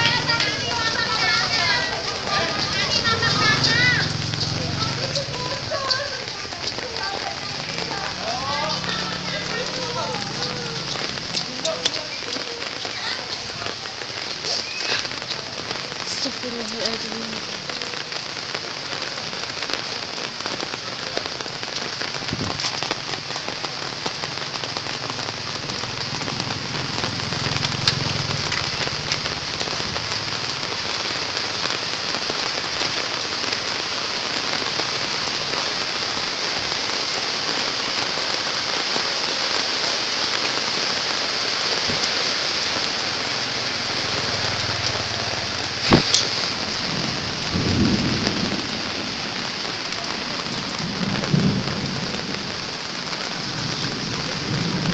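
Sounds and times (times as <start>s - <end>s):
heavy rain pouring: 0.0s - 54.9s
sharp crack: 45.8s - 46.5s.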